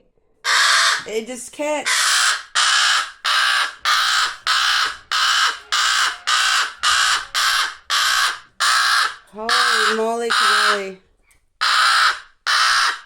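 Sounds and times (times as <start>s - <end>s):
baby crow begging caws: 0.4s - 1.1s, 1.8s - 11.0s, 11.6s - 13.0s.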